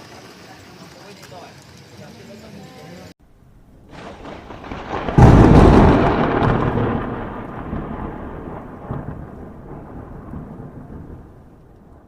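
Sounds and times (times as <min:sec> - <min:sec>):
loud rumbling boom: 0:03.3 - 0:12.0.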